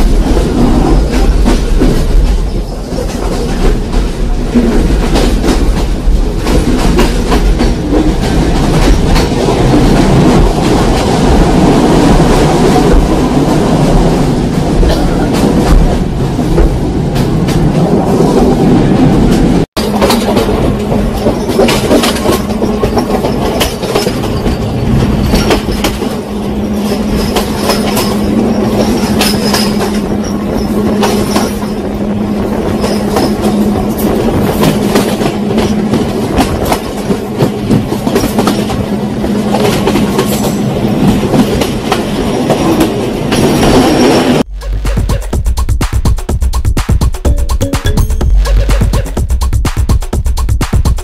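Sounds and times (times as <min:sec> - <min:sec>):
train rumbling: 0:00.0 - 0:51.0
wheels clicking over rail joints: 0:19.3 - 0:32.0.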